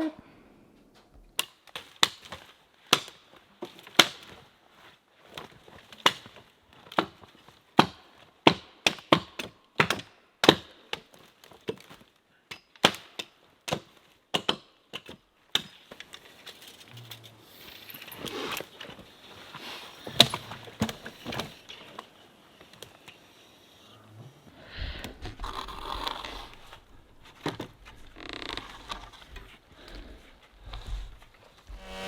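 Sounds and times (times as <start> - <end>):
wood being struck: 31.7 - 32.0.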